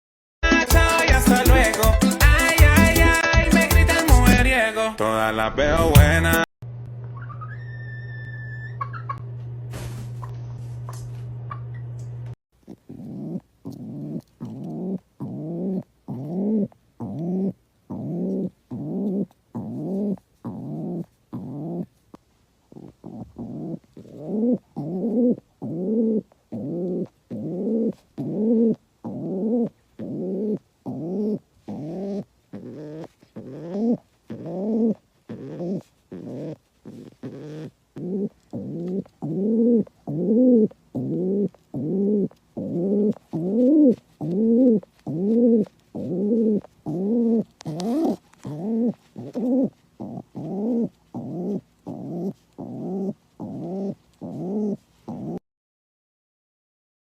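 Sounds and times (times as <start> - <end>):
bird calling low rising notes: 7.1 - 9.2.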